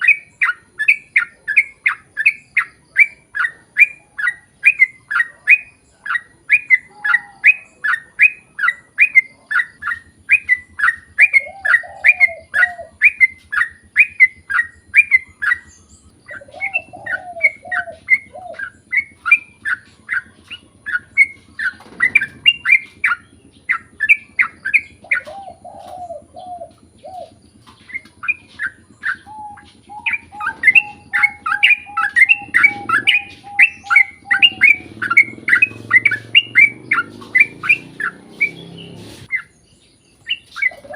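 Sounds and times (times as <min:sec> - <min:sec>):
held bird whistle: 0:00.0 - 0:39.6
bird singing repeated chirps: 0:00.0 - 0:40.9
low warbled bird phrases: 0:00.0 - 0:40.9.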